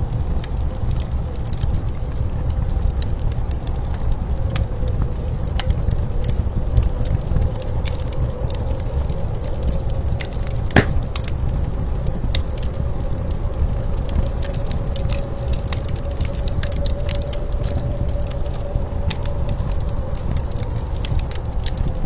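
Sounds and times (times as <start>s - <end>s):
wood fire crackling: 10.8s - 11.3s.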